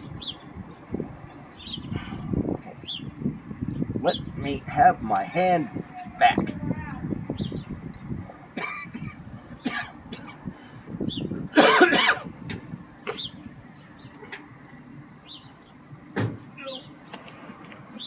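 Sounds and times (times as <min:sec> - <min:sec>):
bird chirps: 0:00.0 - 0:04.4
person coughing: 0:11.6 - 0:12.3.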